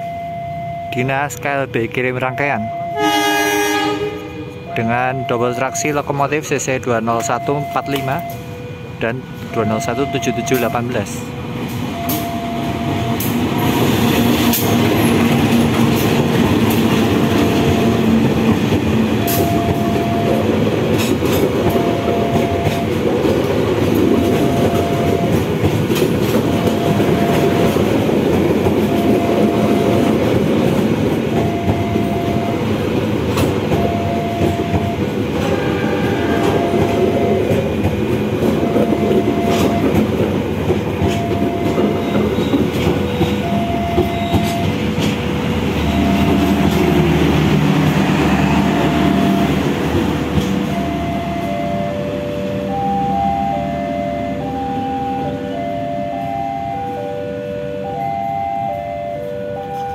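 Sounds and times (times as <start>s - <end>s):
passenger coaches rumbling by: 0.0s - 59.9s
wheels clacking over rail joints: 11.6s - 50.9s.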